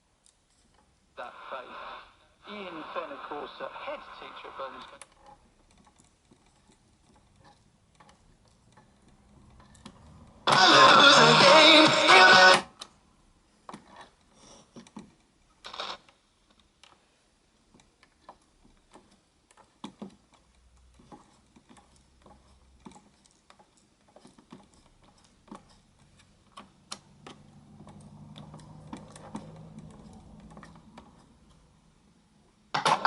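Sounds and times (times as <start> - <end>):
radio static clicks and crackle: 1.2 - 5.2, 15.6 - 16.2.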